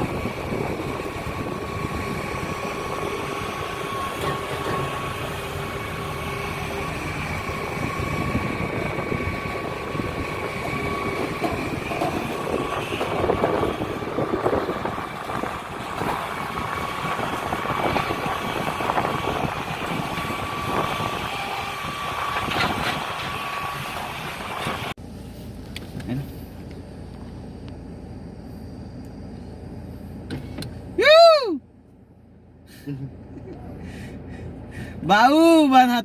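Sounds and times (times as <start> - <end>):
haul truck engine drone: 0.0 - 36.0
steady high whine: 0.0 - 36.0
knocks and rattles: 9.9 - 19.0.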